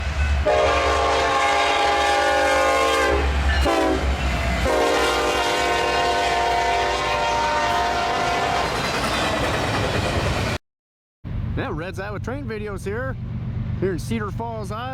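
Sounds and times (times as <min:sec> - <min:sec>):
locomotive air horn blasts: 0:00.4 - 0:08.8
locomotive low rumble: 0:11.3 - 0:14.9.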